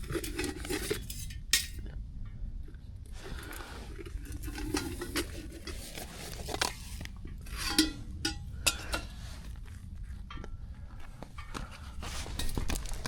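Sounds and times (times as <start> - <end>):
cutlery clinking on cookware: 0.2 - 1.8, 7.5 - 9.4.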